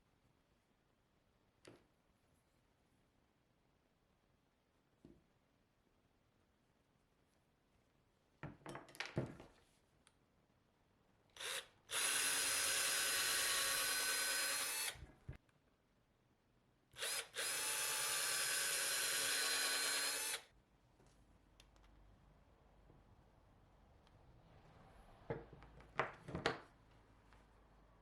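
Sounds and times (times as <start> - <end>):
small electric power tool running: 11.4 - 15.0, 17.0 - 20.5.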